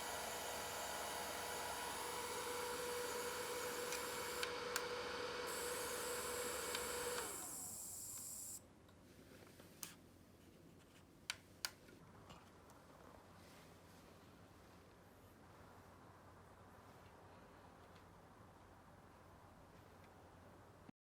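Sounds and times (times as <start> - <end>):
mini fan whirring: 0.0 - 8.6.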